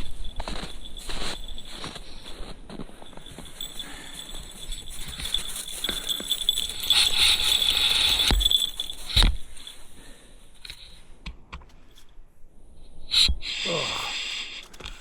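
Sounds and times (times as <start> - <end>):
small metal pieces jingling: 0.0 - 2.4, 3.0 - 9.9.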